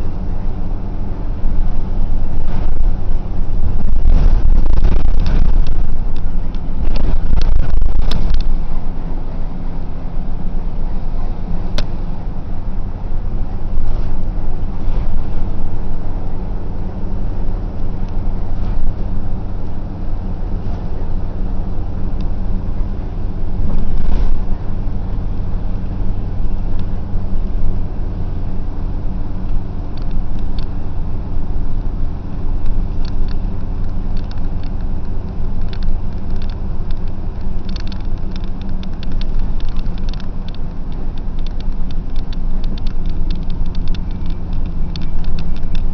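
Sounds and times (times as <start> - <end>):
bus engine drone: 0.0 - 45.9
road rumble: 0.0 - 45.9
light rattling clicks: 29.4 - 30.8, 32.6 - 45.9.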